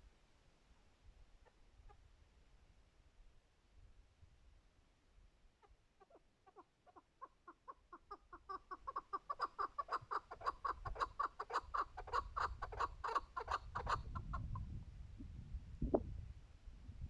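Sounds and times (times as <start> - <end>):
partridge clucking call: 6.0 - 14.4.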